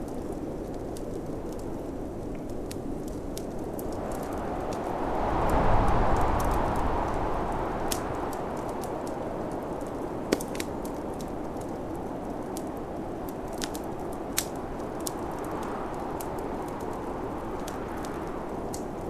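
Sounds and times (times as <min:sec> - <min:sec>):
wood fire crackling and popping: 0:00.0 - 0:19.0
snowstorm wind rushing: 0:03.5 - 0:13.3.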